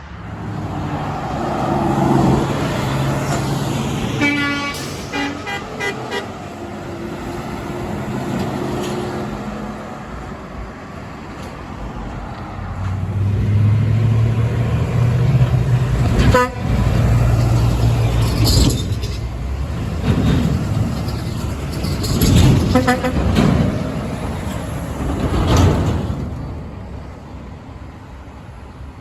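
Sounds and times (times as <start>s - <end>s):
truck engine drone: 0.0s - 29.0s
truck horn toots: 4.1s - 6.5s, 16.2s - 16.9s, 22.7s - 23.3s.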